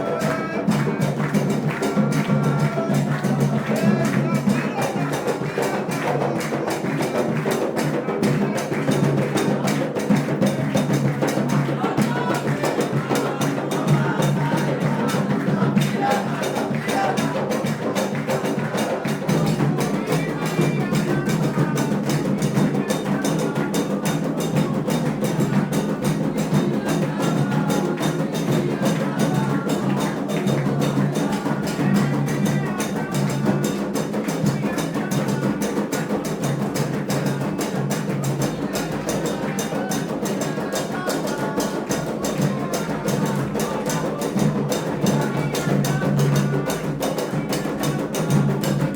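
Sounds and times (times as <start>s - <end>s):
hand drums: 0.0s - 48.9s
voices singing: 0.0s - 48.9s.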